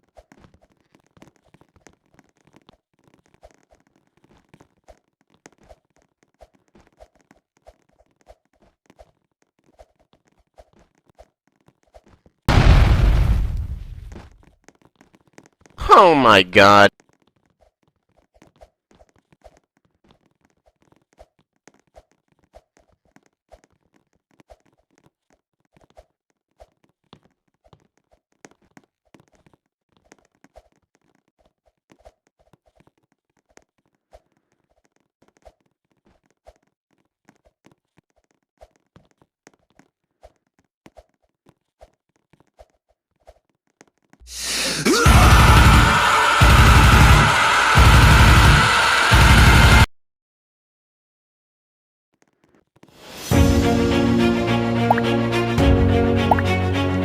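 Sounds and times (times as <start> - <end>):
loud music: 44.3 - 49.9, 53.4 - 57.0.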